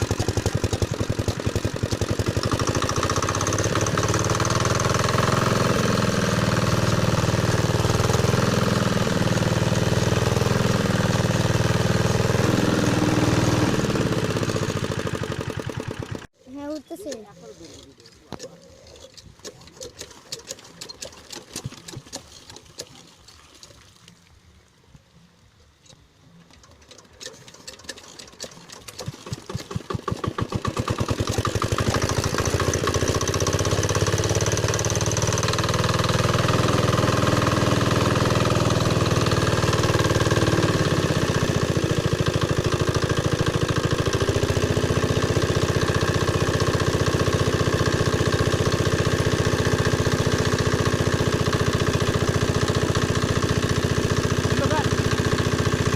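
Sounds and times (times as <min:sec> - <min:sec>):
diesel pump engine starting: 0:00.0 - 0:23.0, 0:25.8 - 0:55.9.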